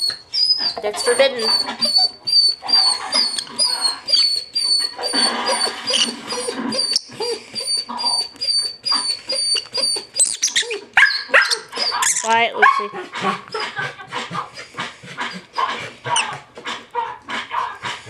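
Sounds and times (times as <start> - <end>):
bird chirping: 0.0 - 12.4
dog whining and whimpering: 0.0 - 12.4.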